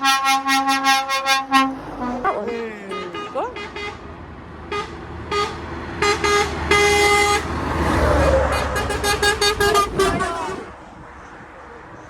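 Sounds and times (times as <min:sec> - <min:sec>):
truck horn tooting: 0:00.0 - 0:10.8
lorry engine and tyre noise: 0:00.0 - 0:12.0.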